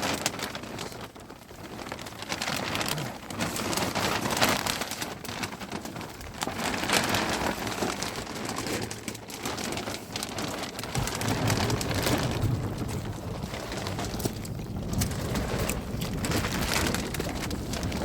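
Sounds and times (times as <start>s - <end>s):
heavy rain pouring: 0.0s - 18.0s
low rumble: 10.9s - 18.0s.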